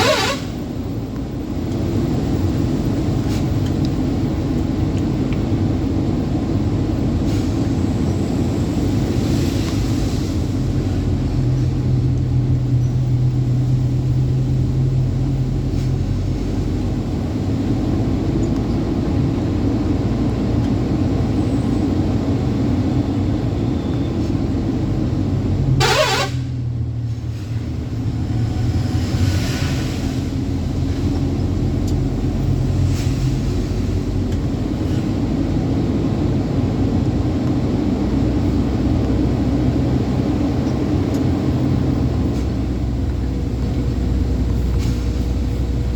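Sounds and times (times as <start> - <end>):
truck engine droning: 0.0 - 45.9
short sharp sound: 25.8 - 26.6.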